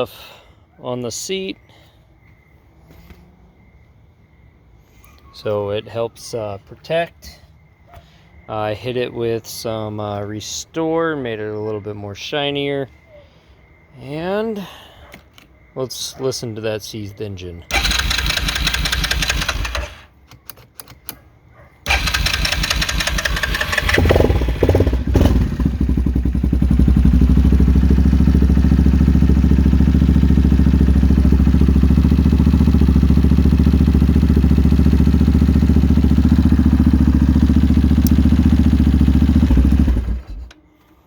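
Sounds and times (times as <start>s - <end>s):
engine idling: 17.7s - 20.0s, 21.9s - 40.6s
engine cranking: 17.7s - 21.2s, 21.9s - 25.7s, 34.6s - 40.6s.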